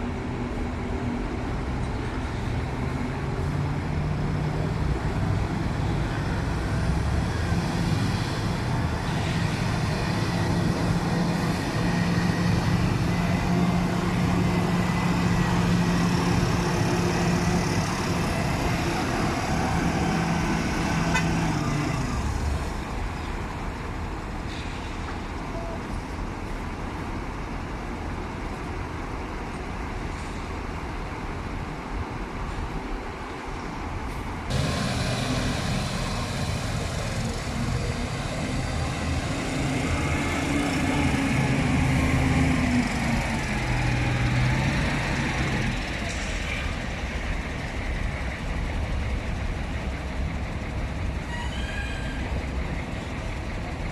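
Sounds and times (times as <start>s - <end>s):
truck diesel engine running: 3.9s - 24.3s, 34.5s - 51.4s, 52.0s - 53.9s.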